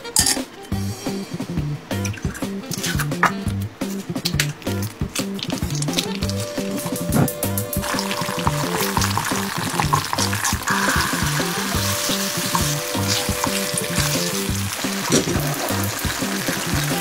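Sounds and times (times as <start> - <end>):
background music: 0.0 - 17.0
food sizzling in hot oil: 5.1 - 17.0.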